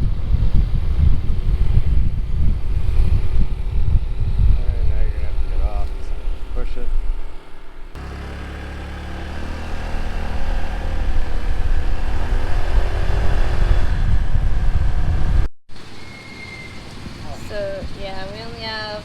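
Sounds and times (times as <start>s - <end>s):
wind rumble on microphone: 0.0s - 8.0s, 9.8s - 15.5s
motorbike engine running: 8.0s - 15.5s.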